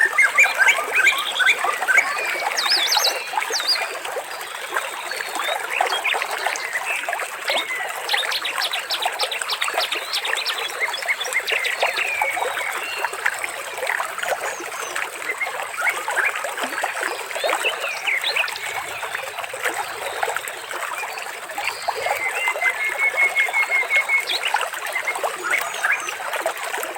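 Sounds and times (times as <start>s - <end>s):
water trickling and splashing: 0.0s - 26.9s.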